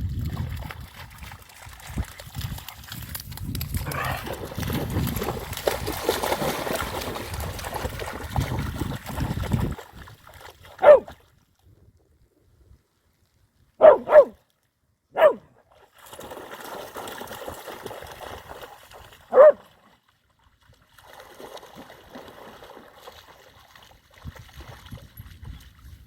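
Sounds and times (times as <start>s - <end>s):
dogs barking: 10.8s - 11.1s, 13.8s - 14.4s, 15.2s - 15.5s, 19.3s - 19.6s.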